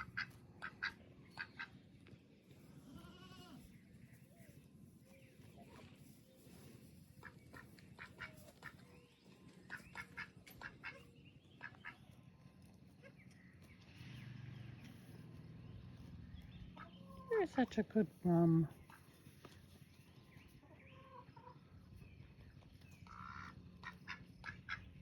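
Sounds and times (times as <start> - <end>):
ducks quacking: 0.0 - 1.8, 7.2 - 8.9, 9.7 - 12.1, 23.0 - 25.0
goat bleating: 2.8 - 3.7.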